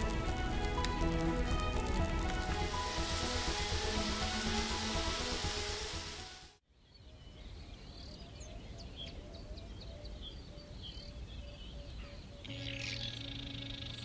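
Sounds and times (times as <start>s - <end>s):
small birds chirping: 6.8s - 14.0s.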